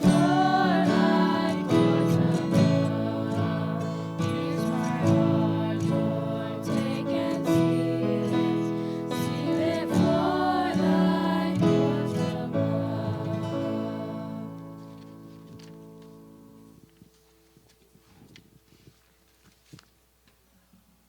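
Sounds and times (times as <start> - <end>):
strummed acoustic guitar: 0.0 - 16.6.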